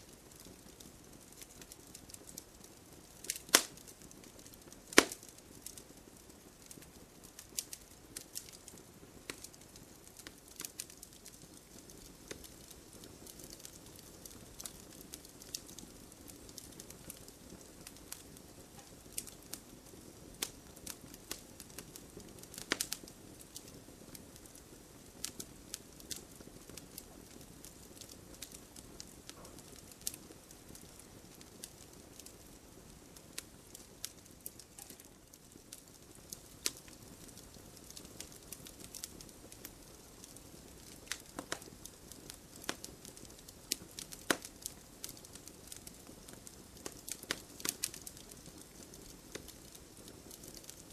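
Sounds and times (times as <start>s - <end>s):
wood fire crackling: 0.0s - 50.9s.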